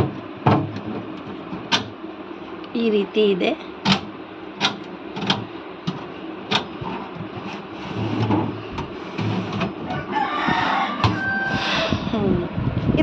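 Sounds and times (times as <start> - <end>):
refrigerator drawers clicking and knocking: 0.0 - 2.0, 3.8 - 11.3.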